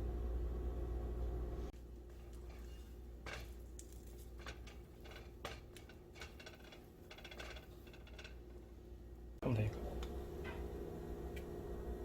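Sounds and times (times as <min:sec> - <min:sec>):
dishes and utensils clicking: 0:02.2 - 0:08.6.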